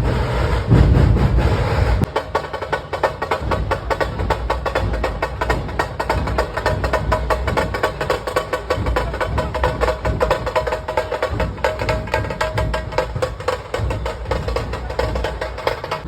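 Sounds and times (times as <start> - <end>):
deep drum beats: 0.0 - 16.0.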